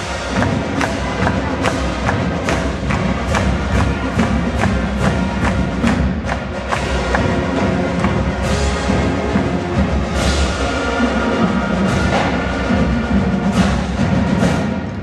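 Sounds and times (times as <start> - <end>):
sharp percussion clicks: 0.0 - 10.4
marching band playing: 0.0 - 15.0.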